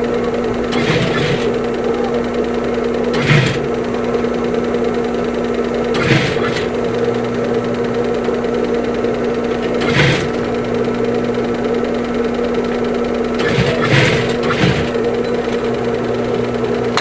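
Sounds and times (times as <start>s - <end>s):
sewing machine running: 0.0s - 17.0s.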